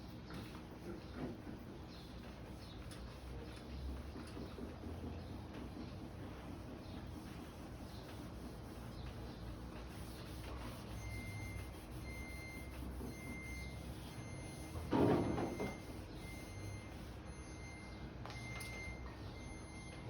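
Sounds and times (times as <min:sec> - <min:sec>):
scrape or rub: 0:04.3 - 0:17.2
refrigerator alarm beeping: 0:10.9 - 0:20.0.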